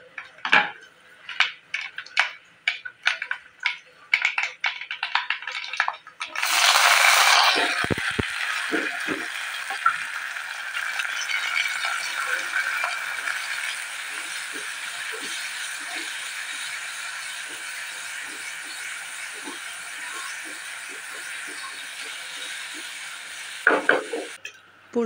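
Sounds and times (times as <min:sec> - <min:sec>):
food sizzling in hot oil: 0:05.0 - 0:24.4.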